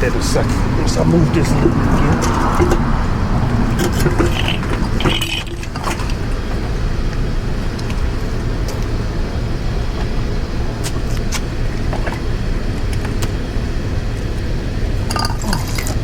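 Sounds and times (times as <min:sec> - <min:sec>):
steady low rumble: 0:00.0 - 0:16.0
metal parts clicking and clinking: 0:03.7 - 0:06.2, 0:15.1 - 0:16.0.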